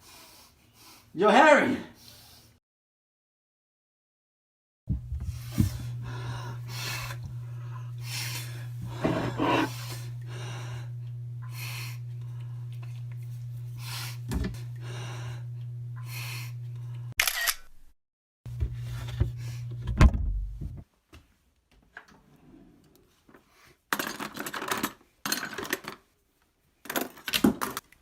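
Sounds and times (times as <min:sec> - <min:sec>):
low electrical hum: 0:04.9 - 0:17.1
person breathing heavily: 0:05.3 - 0:12.7, 0:13.7 - 0:17.1.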